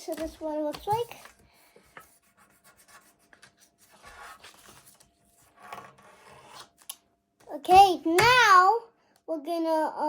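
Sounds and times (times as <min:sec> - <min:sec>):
paper rustling and creasing: 0:00.0 - 0:02.1, 0:03.3 - 0:06.9.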